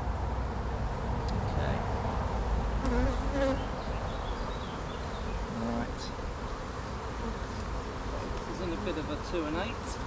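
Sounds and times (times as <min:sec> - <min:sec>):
honeybees buzzing: 0:02.1 - 0:10.0.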